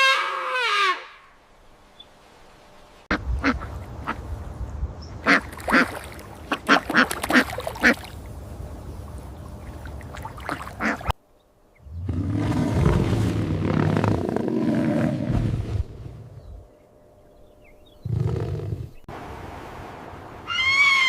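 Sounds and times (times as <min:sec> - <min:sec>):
ducks quacking: 0:03.1 - 0:04.2, 0:05.2 - 0:08.1, 0:10.4 - 0:11.2.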